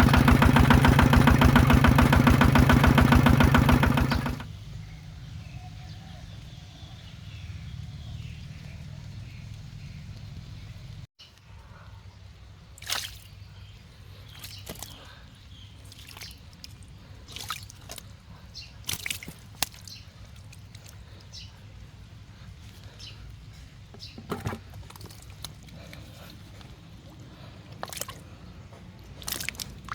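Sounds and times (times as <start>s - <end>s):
water splashing and dripping: 12.8s - 13.4s, 14.3s - 15.1s, 15.8s - 21.3s, 24.6s - 29.9s.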